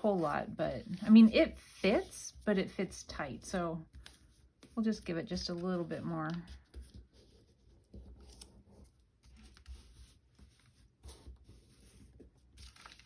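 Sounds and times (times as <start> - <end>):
paper rustling and scraping: 0.0 - 13.0.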